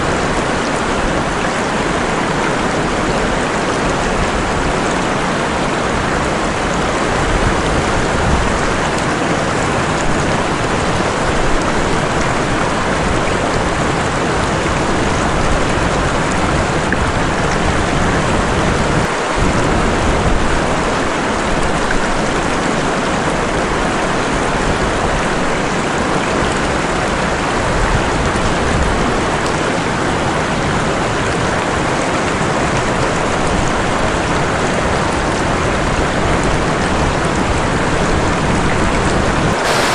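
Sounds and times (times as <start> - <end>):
waterfall rushing: 0.0 - 21.4, 39.2 - 39.9
heavy rain: 0.0 - 39.9.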